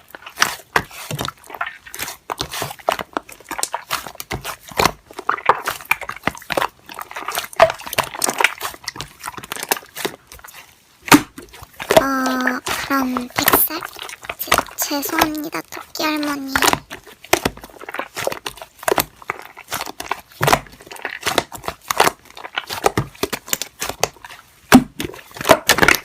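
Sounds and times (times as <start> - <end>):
slime squished by hand: 0.0 - 26.0.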